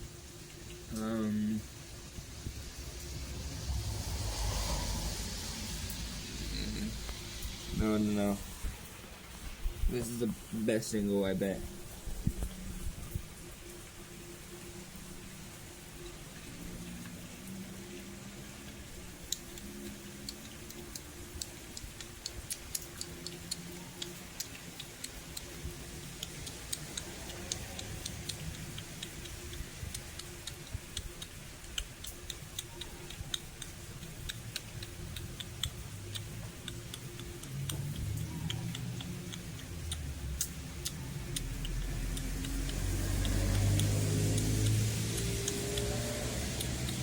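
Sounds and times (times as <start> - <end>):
rain falling: 0.0 - 47.0
drops ticking on hard surface: 18.6 - 47.0.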